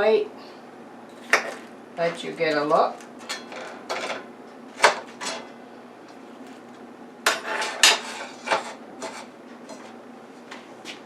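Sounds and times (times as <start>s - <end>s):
utensils clinking on a plate: 3.2s - 5.5s, 7.3s - 9.9s.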